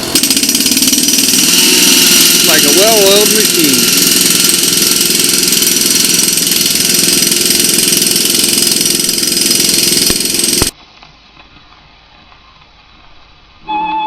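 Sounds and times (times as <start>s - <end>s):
machinery engine running: 0.0s - 10.8s.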